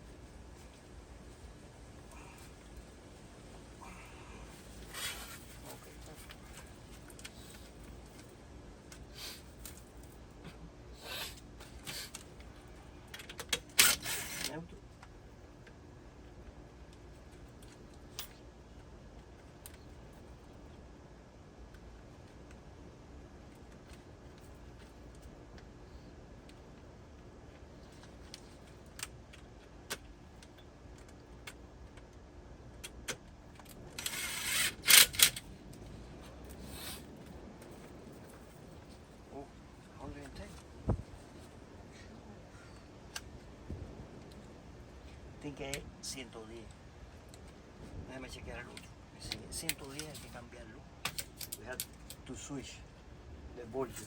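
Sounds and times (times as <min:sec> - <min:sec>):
soft rustle: 0:00.0 - 0:08.6, 0:35.5 - 0:45.4
handling scrapes and rustles: 0:04.6 - 0:08.3.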